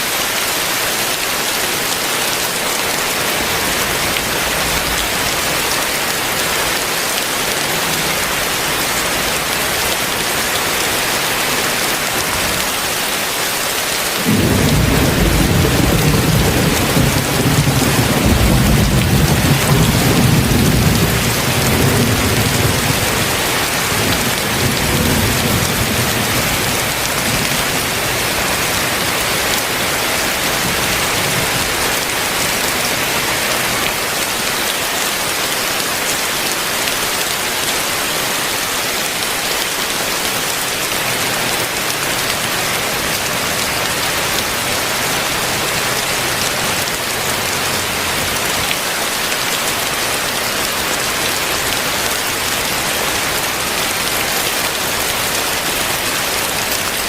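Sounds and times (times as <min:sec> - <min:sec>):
heavy rain falling: 0:00.0 - 0:57.0
low thunder rumble: 0:14.2 - 0:29.0.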